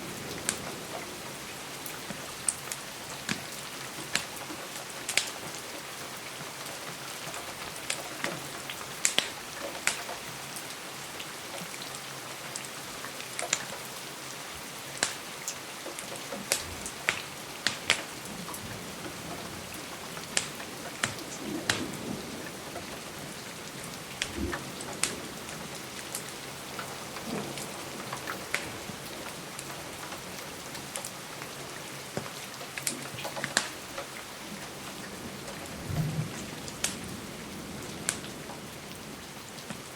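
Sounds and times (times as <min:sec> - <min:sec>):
rain against a window: 0:00.0 - 0:39.9
wood fire crackling: 0:15.9 - 0:23.4, 0:24.0 - 0:31.5, 0:32.1 - 0:38.6.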